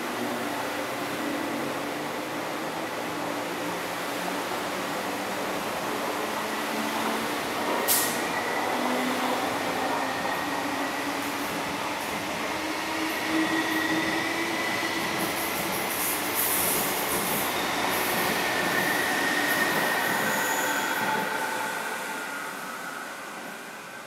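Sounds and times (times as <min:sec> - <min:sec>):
train wheel squeal: 0:13.0 - 0:23.7.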